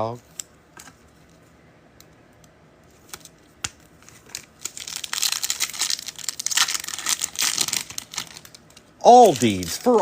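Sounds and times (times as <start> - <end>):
foil wrapper crinkling: 4.0 - 10.0.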